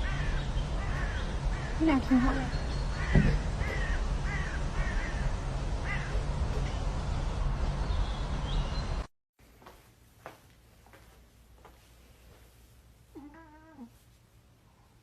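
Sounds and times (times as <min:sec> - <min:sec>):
low outdoor rumble: 0:00.0 - 0:09.1.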